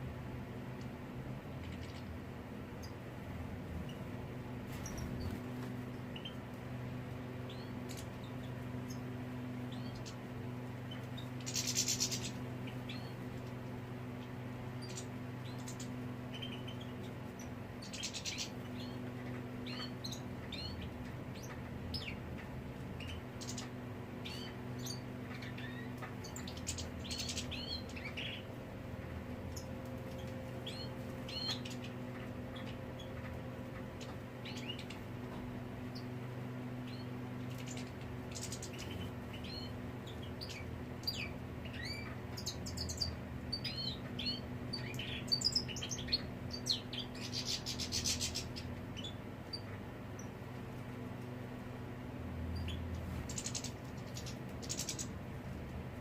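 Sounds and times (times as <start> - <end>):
low electrical hum: 0.0 - 56.0
songbirds chirping: 0.0 - 56.0
buzzy bird trills: 4.7 - 6.5, 7.4 - 13.4, 14.1 - 22.2, 35.8 - 50.4, 52.5 - 55.2.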